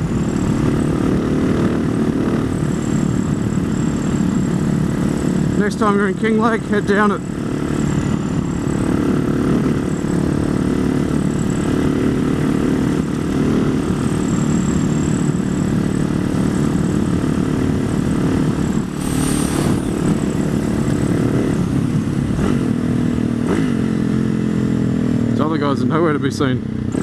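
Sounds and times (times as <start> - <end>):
motorcycle engine running: 0.0 - 27.0
rush of noise: 16.1 - 23.9.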